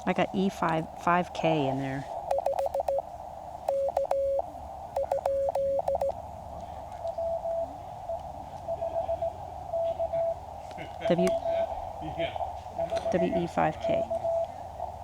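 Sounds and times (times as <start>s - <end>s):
faint morse signal: 2.3s - 3.0s, 3.7s - 4.4s, 5.0s - 6.2s, 7.1s - 10.4s, 12.8s - 14.6s
key clicks: 2.3s - 3.0s, 3.7s - 4.4s, 5.0s - 6.1s
morse code tone: 2.3s - 3.0s, 3.7s - 4.4s, 5.0s - 6.1s, 12.9s - 14.4s.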